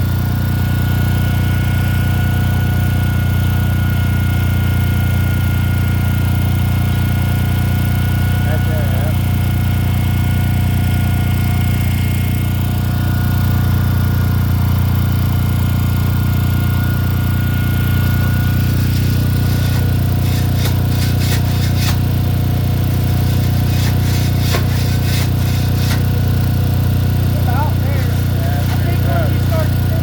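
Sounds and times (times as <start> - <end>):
machine motor droning: 5.9 - 30.0
sharp clicks and knocks: 18.7 - 22.1, 23.0 - 26.2.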